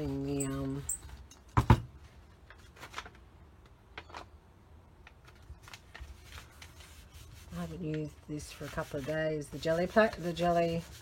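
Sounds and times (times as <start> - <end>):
paper rustling: 2.5 - 3.2, 5.2 - 11.0.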